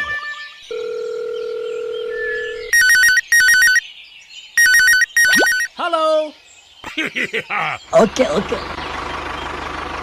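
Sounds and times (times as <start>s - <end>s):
electronic telephone ringing: 0.7s - 3.8s, 4.6s - 5.7s.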